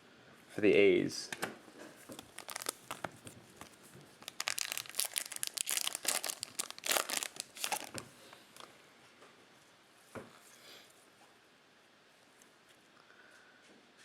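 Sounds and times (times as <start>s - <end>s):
card pack wrapper crinkling and tearing: 2.0s - 8.0s.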